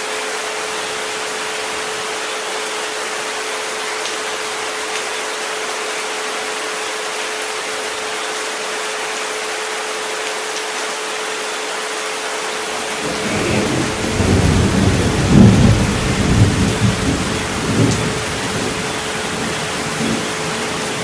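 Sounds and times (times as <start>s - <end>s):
steady rain: 0.0s - 21.0s
rolling thunder: 12.9s - 21.0s.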